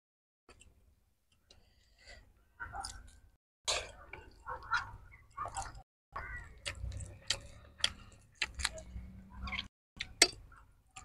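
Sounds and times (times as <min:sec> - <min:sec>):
wet chewing and mouth clicks: 0:02.7 - 0:05.8, 0:06.4 - 0:11.0.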